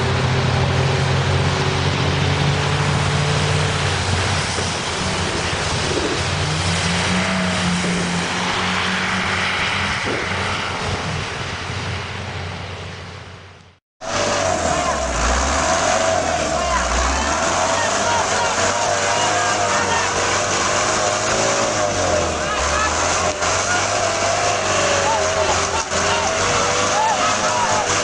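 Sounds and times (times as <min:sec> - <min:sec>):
heavy vehicle engine running: 0:00.0 - 0:28.0
loud rushing noise: 0:14.0 - 0:28.0.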